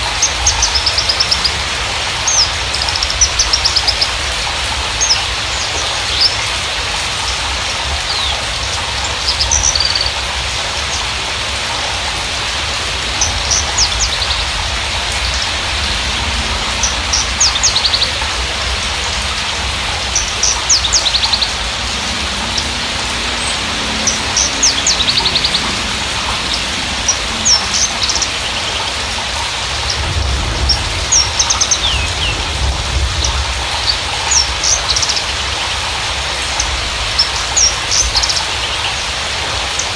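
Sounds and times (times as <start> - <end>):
steady hiss: 0.0 - 39.9
low rumble: 11.2 - 34.6
bird chirping and trilling: 13.1 - 30.0.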